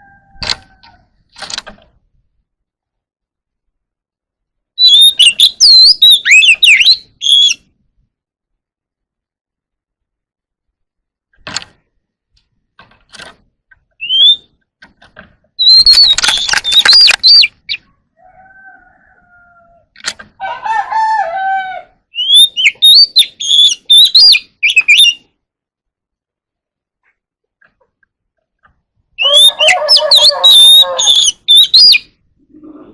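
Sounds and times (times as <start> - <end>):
bird singing whistled phrases: 4.8 - 7.6, 14.0 - 14.5, 15.6 - 17.8, 22.1 - 25.3, 29.2 - 32.1.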